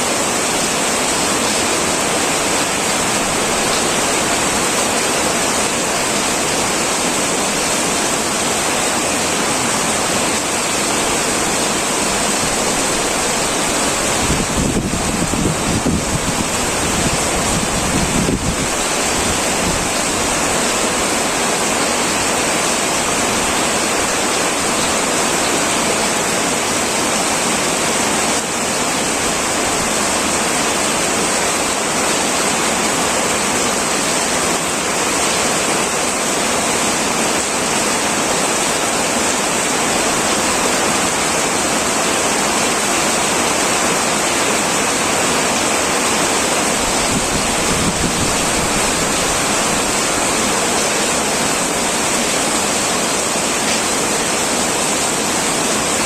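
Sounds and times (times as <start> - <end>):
heavy rain on a tin roof: 0.0 - 56.0.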